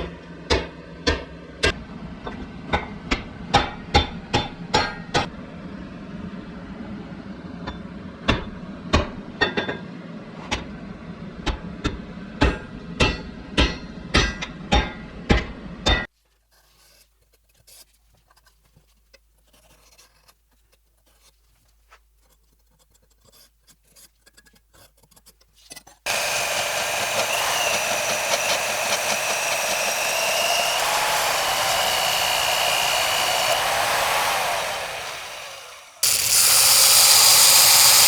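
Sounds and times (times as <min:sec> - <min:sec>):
power grinder whining: 0:26.1 - 0:38.0.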